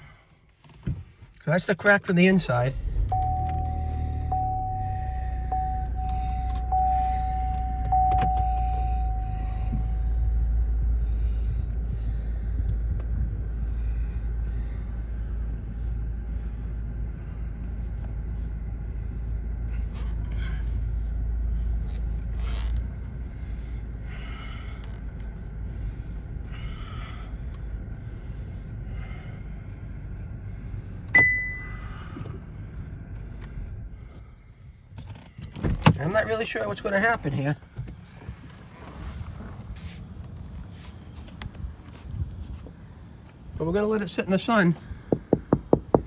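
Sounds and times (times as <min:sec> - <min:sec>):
car rumble from inside: 0:00.0 - 0:46.0
steady tone: 0:02.9 - 0:11.0.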